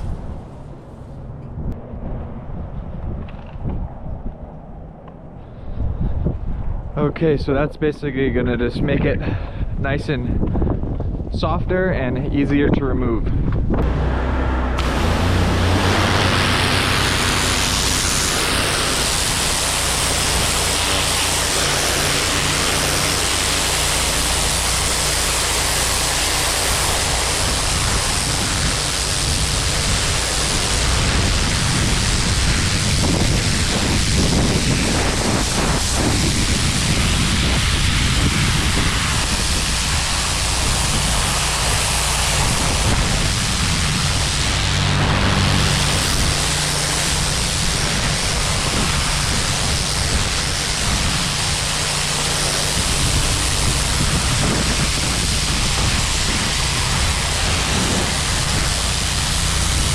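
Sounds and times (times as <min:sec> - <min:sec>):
pressure washer engine hum: 0:13.8 - 0:59.9
water spray hissing on concrete: 0:14.8 - 0:59.9.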